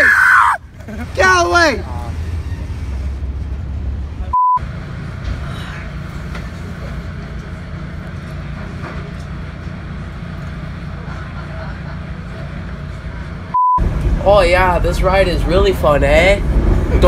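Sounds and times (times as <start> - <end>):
train rumbling: 0.6 - 17.0
censor bleep: 4.3 - 4.6, 13.6 - 13.8.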